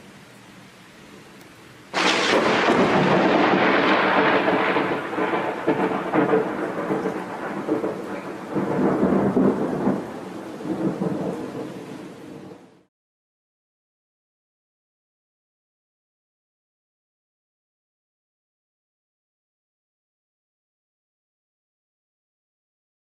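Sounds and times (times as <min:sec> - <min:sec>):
rain hiss: 0:00.0 - 0:12.9
rolling thunderclap: 0:02.0 - 0:11.7.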